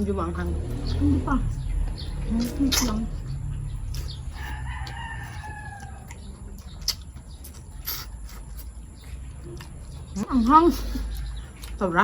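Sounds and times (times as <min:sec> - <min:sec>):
rooster crowing: 0:03.6 - 0:06.7.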